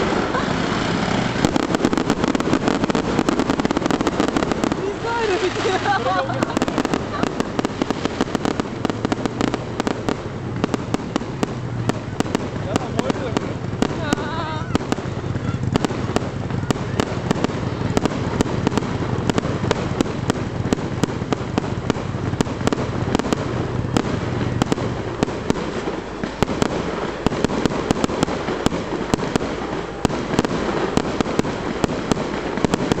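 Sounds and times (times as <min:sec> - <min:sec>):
continuous low rumble: 0:00.0 - 0:33.0
fireworks bangs and crackles: 0:00.0 - 0:33.0.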